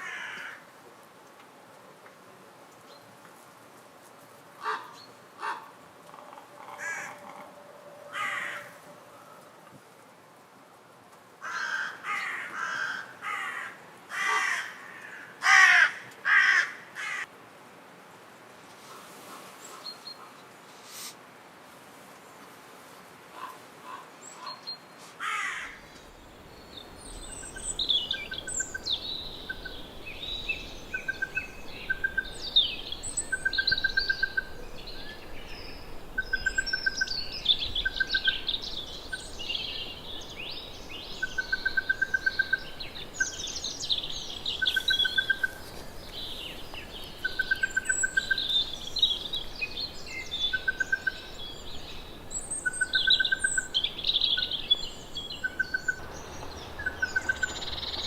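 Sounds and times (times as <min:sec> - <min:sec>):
small birds chirping: 0:25.8 - 0:58.0.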